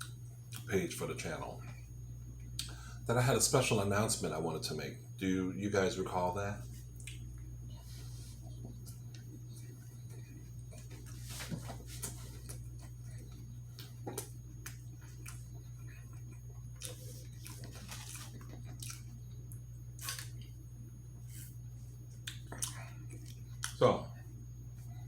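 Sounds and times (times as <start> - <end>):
steady low hum: 0.0 - 25.0
wet chewing: 6.9 - 7.4, 12.4 - 20.5, 22.2 - 23.8.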